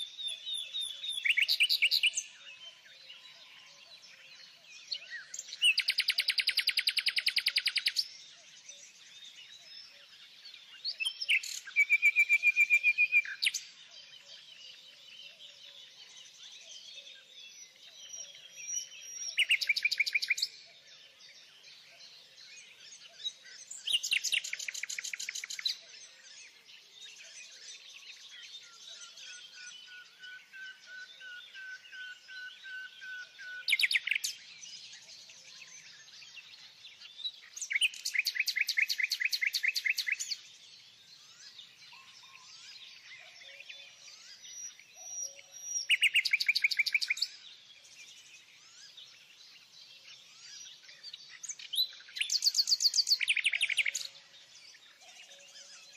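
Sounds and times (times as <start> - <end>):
birds chirping: 17.7 - 55.9.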